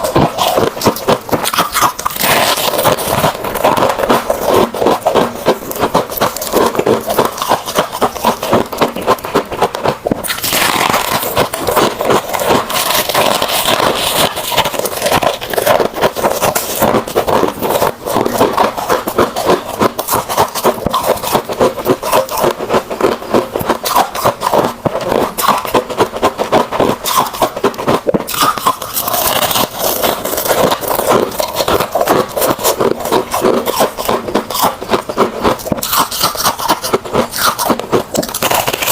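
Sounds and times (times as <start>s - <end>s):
chewing crunchy ice: 0.0s - 38.9s.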